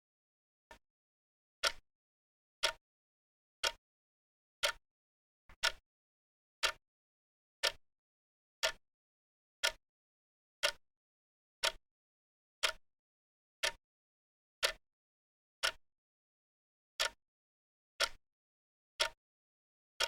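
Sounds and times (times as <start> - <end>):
clock ticking: 5.6 - 5.8.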